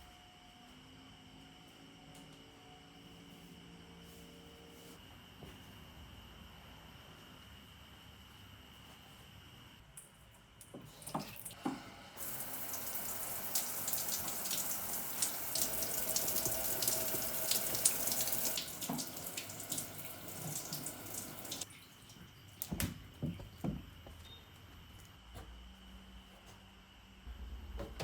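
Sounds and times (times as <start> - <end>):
tap water running into sink: 10.9 - 22.8.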